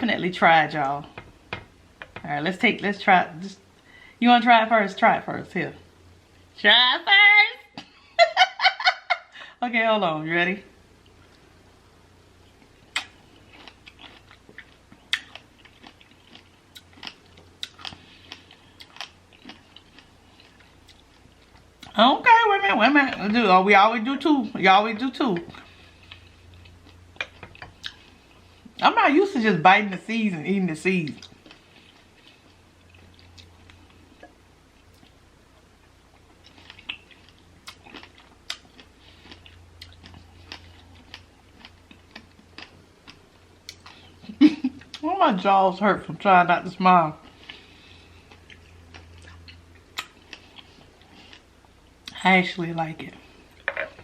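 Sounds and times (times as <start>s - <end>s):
person chewing seeds: 12.5s - 22.0s, 31.2s - 44.2s, 47.2s - 52.2s.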